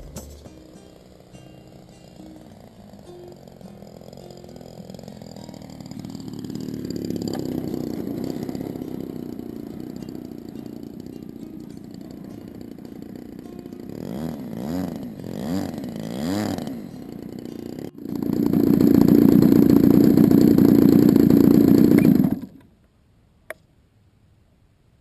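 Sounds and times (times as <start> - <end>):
model airplane engine revving: 0.0 - 22.7
click: 23.5 - 23.7.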